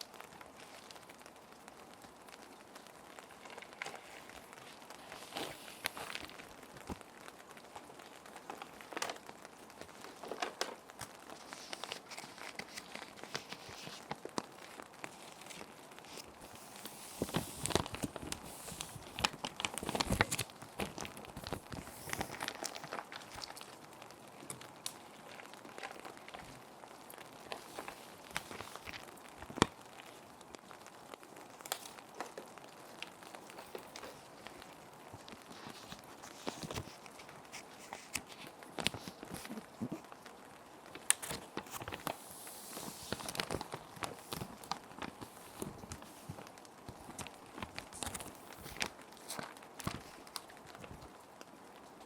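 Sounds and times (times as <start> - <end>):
gentle rain: 0.0 - 52.0
plastic sheet protectors crinkling: 0.0 - 52.0
paper sliding into sleeves: 41.2 - 43.6.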